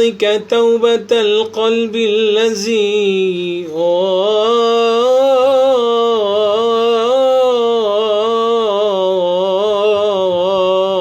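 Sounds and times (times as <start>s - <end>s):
man singing devotional song: 0.0s - 11.0s.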